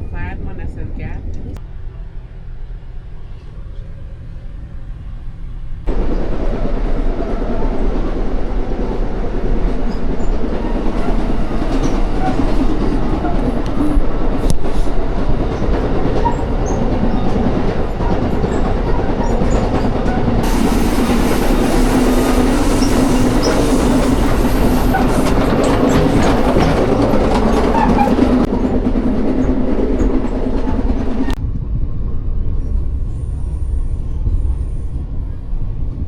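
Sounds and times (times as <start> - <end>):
train rumble with wheel clatter: 0.0 - 36.0
hiss: 20.4 - 24.9.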